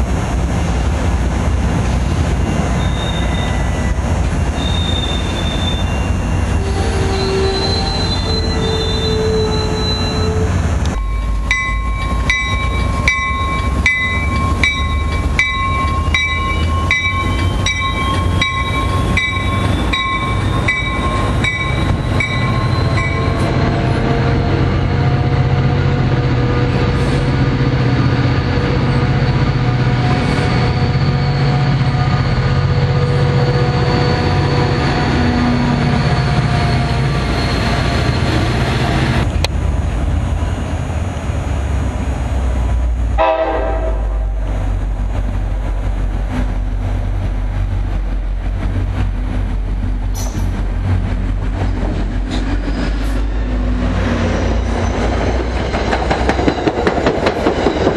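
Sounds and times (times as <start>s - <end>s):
diesel train drone: 0.0s - 57.9s
passing train rumble: 0.0s - 57.9s
railroad warning bell ringing: 10.9s - 23.6s.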